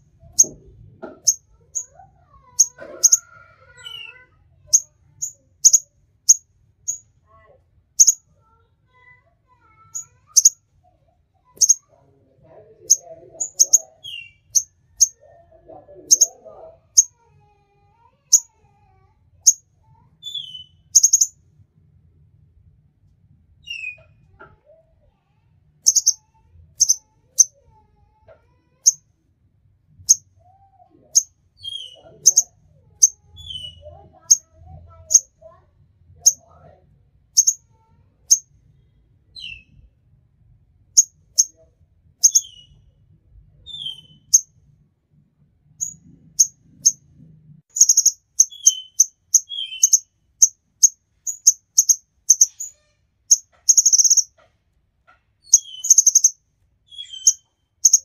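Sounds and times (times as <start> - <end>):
songbird chirping: 0.0 - 7.2, 8.0 - 9.1, 9.8 - 10.7, 11.4 - 17.3, 19.4 - 21.4, 25.8 - 27.7, 30.0 - 35.4, 37.4 - 38.6, 42.2 - 43.0, 43.6 - 44.6, 47.7 - 58.0
bird whistling and warbling: 20.2 - 21.3, 31.2 - 34.4, 42.2 - 42.8, 43.6 - 44.4, 47.8 - 50.1, 55.4 - 56.3, 56.9 - 58.0.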